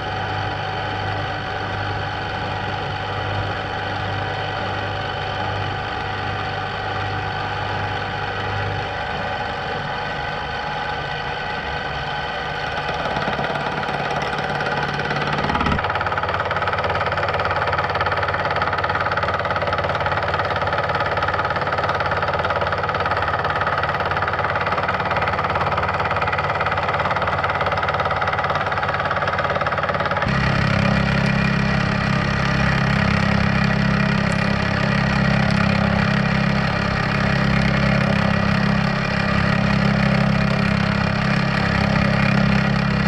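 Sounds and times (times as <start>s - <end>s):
machine spindle running: 0.0s - 43.0s
fly cutter cutting workpiece: 12.7s - 15.9s, 30.2s - 43.0s.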